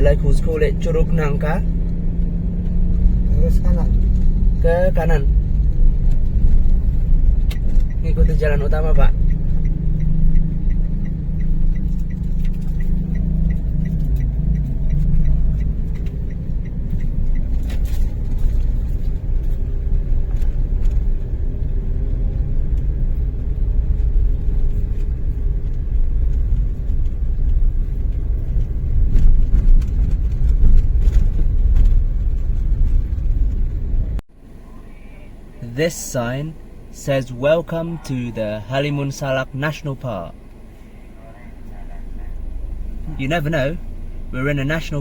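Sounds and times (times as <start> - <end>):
car engine and road noise: 0.0 - 45.0
light ticking: 5.5 - 29.0.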